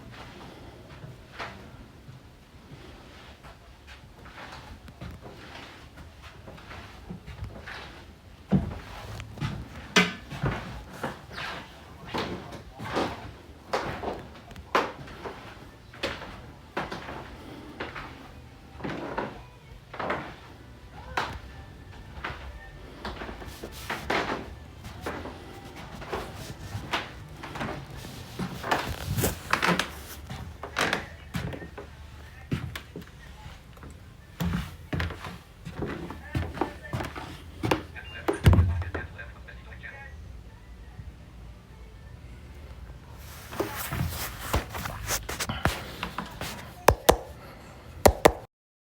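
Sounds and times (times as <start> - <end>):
crinkly rustles: 23.0 - 37.6, 43.2 - 46.9
plastic bottle crinkling: 25.6 - 30.4, 43.2 - 47.4
kitchen knocks: 46.8 - 47.4, 48.1 - 48.5.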